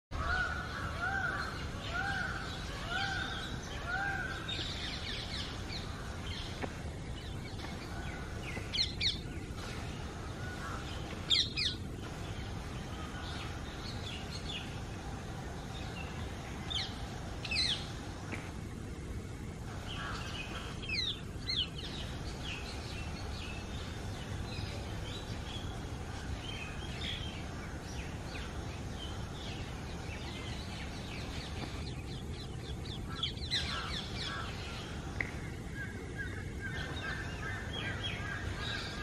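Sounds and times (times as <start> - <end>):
steady background noise: 0.1 - 39.0
bird arched calls: 19.7 - 31.9, 32.5 - 35.2.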